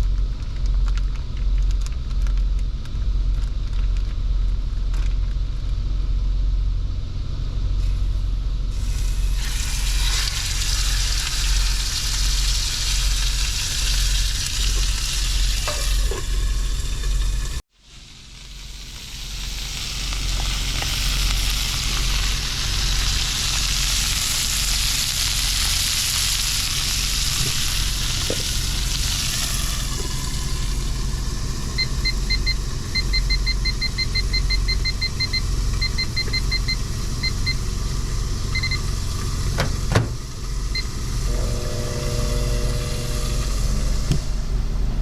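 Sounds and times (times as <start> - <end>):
steady low rumble: 0.0 - 45.0
steak sizzling in a frying pan: 8.8 - 32.9.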